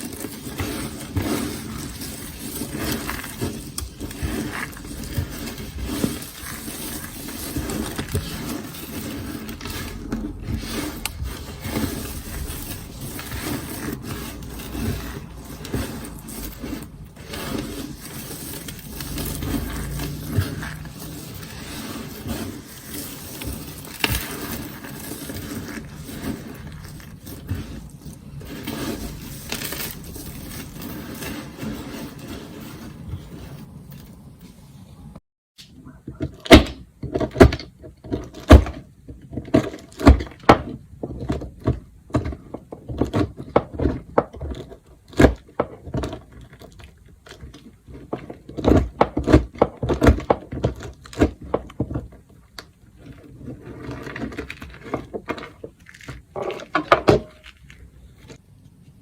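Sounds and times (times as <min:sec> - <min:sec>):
blade scraping and shaving soap: 0:00.0 - 0:34.3, 0:36.4 - 0:58.4
blade chopping soap with cracks: 0:36.2 - 0:52.7.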